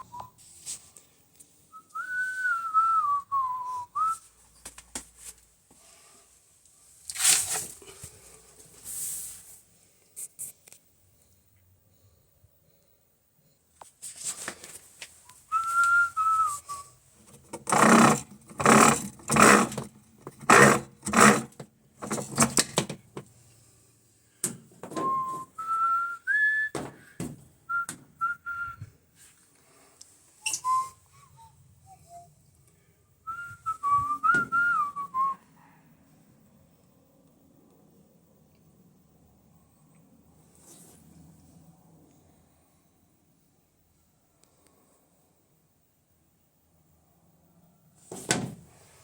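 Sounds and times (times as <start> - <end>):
person whistling: 1.7 - 4.3, 15.5 - 16.9, 25.0 - 26.8, 27.7 - 28.9, 30.4 - 32.4, 33.3 - 35.4.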